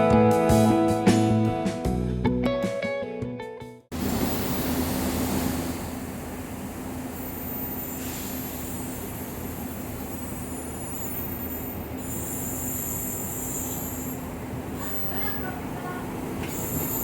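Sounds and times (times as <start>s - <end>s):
diesel train engine droning hum: 3.9s - 17.0s.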